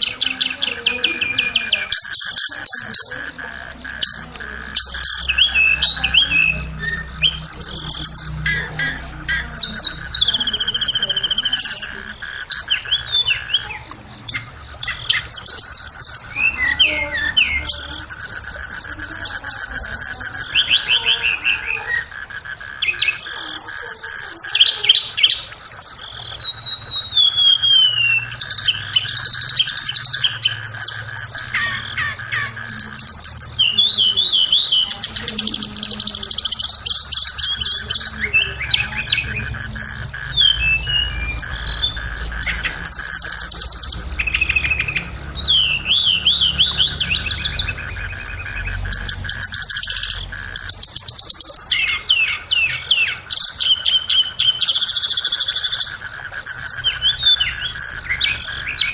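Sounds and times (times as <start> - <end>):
flycatcher song: 0.0 - 58.9.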